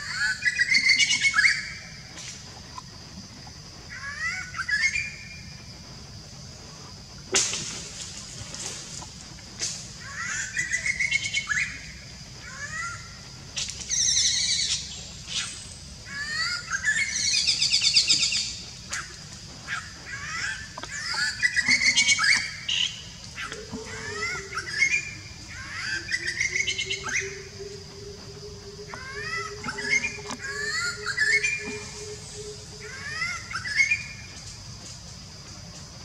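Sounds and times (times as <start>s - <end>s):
high-pitched background whine: 0.0s - 36.0s
birds chirping and trilling: 19.6s - 34.4s.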